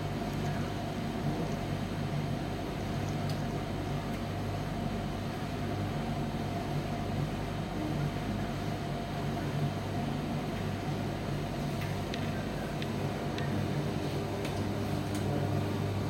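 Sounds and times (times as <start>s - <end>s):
tumble dryer humming: 10.9s - 16.0s.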